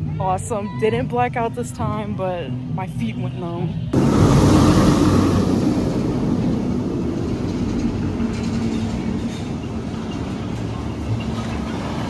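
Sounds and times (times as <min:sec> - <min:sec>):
roller coaster rumbling on track: 0:03.9 - 0:12.0.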